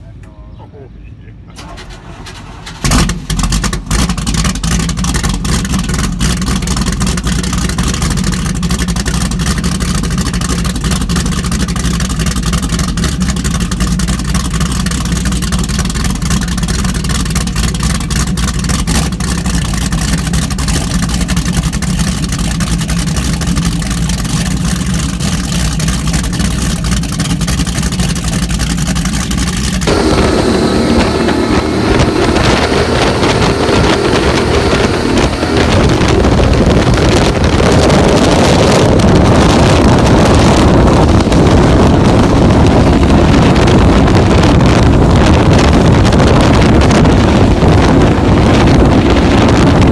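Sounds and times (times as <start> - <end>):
boat engines running: 2.8 - 49.9
wind rushing: 29.8 - 49.9.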